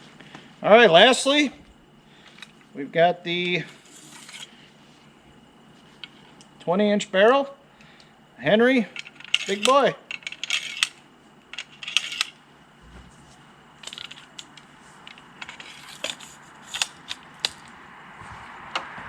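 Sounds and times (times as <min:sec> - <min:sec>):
metallic clicks of rifle handling: 0:09.0 - 0:12.4, 0:13.8 - 0:17.7.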